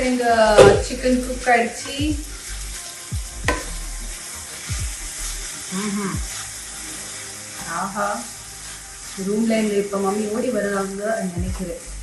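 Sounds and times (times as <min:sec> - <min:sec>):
meat sizzling in a pan: 0:00.0 - 0:12.0
spatula thudding against pan: 0:03.5 - 0:03.7
wooden spatula scraping a pan: 0:04.5 - 0:11.6.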